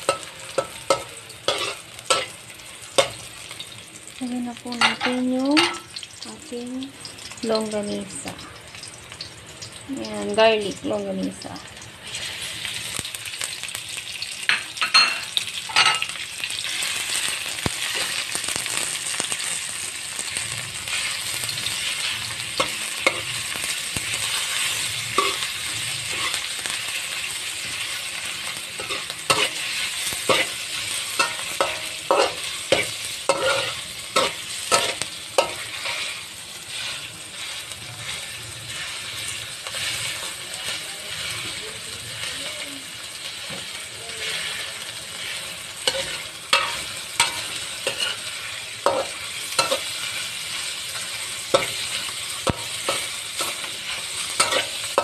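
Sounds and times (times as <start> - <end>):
metal spoon scraping a wok: 0.0 - 3.5, 20.3 - 41.6, 43.3 - 55.0
sausage sizzling in oil: 0.0 - 55.0.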